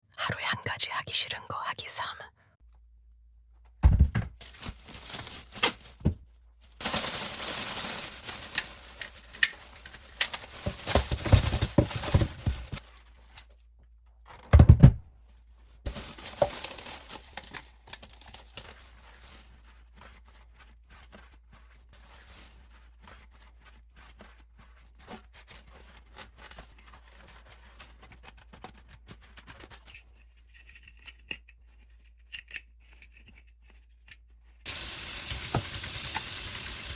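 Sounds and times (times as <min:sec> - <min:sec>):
scratchy rustling: 0:04.4 - 0:13.5, 0:15.3 - 0:30.6.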